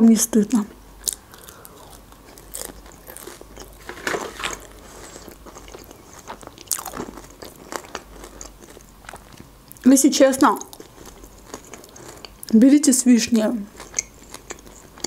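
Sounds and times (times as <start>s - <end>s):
person chewing: 1.0s - 9.8s, 10.6s - 12.6s, 13.7s - 15.0s
crisp pastry crust crackling: 1.0s - 9.9s.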